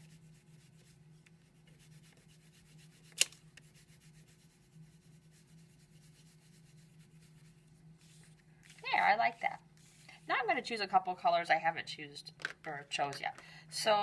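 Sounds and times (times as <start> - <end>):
crayon rubbing on paper: 0.0 - 10.6
sharp click: 3.2 - 3.4.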